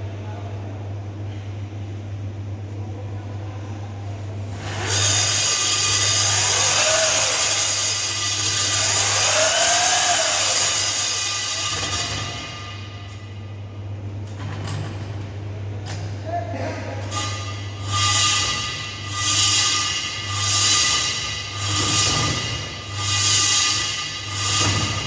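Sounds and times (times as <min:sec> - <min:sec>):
core drill grinding into wall: 0:04.6 - 0:12.3.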